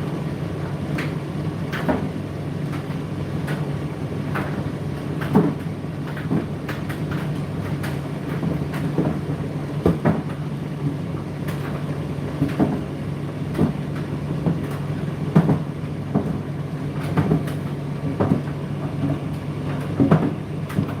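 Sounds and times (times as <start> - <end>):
tumble dryer motor hum: 0.0 - 21.0
load knocking in dryer drum: 5.2 - 10.4, 12.4 - 21.0.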